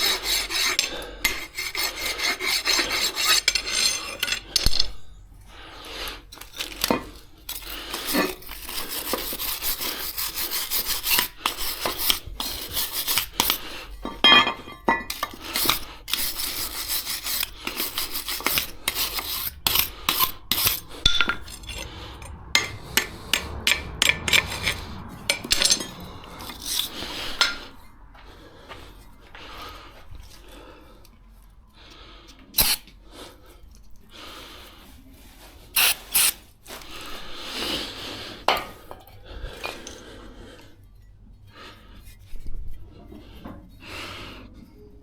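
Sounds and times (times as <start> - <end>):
hand tool scraping: 0.0 - 5.0, 6.0 - 30.6, 32.3 - 32.9, 34.6 - 40.0.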